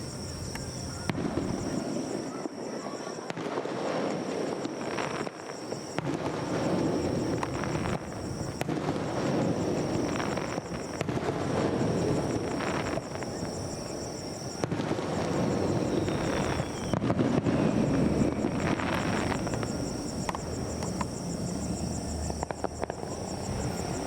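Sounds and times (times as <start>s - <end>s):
firework bangs and crackles: 0.0s - 24.0s.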